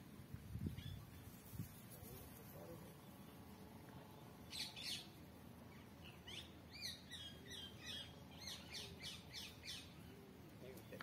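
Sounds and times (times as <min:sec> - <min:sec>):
birds chirping: 0:00.6 - 0:11.0.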